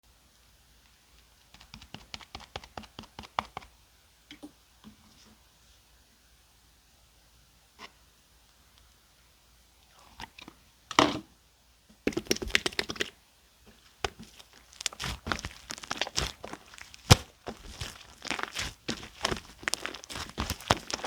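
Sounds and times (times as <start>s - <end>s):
slime squished by hand: 14.0s - 21.0s.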